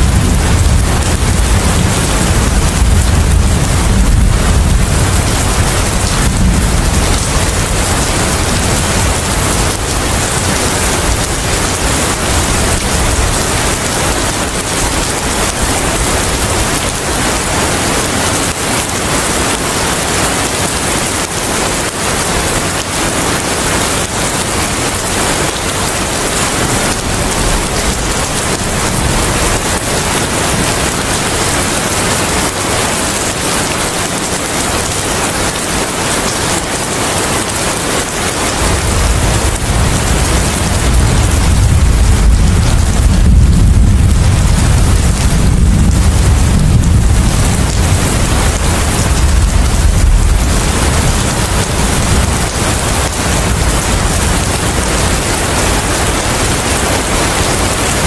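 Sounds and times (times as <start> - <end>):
dense rainfall: 0.0 - 58.0
wind: 0.0 - 58.0
low rumble: 38.9 - 54.5.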